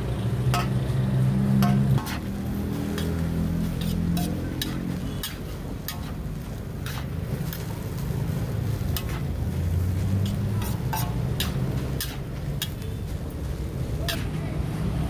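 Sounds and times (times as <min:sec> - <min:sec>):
frying hiss: 0:00.0 - 0:15.0
metal spatula scraping wok: 0:00.2 - 0:15.0.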